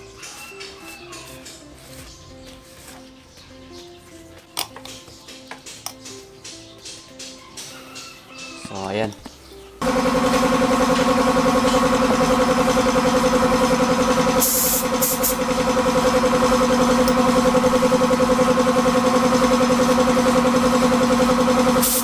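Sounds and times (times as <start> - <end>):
air compressor motor humming: 9.8 - 22.0
spray gun hissing: 12.3 - 22.0.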